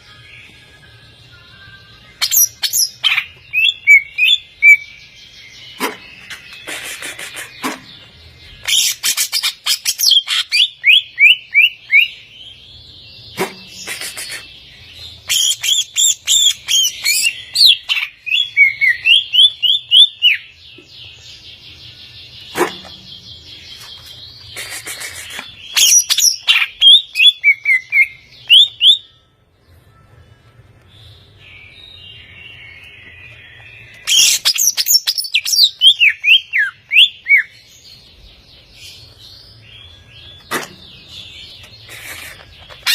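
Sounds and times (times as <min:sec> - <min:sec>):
bird whistling song: 0:02.2 - 0:07.9, 0:08.6 - 0:12.2, 0:15.2 - 0:20.6, 0:22.4 - 0:29.2, 0:31.5 - 0:37.8, 0:38.8 - 0:42.9
bird chattering: 0:05.8 - 0:08.0, 0:13.4 - 0:14.5, 0:40.4 - 0:42.9.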